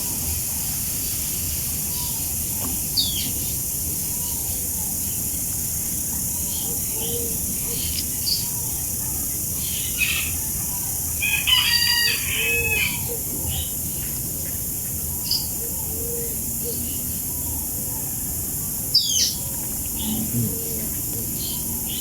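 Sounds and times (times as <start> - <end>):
rooster crowing: 11.1 - 13.2.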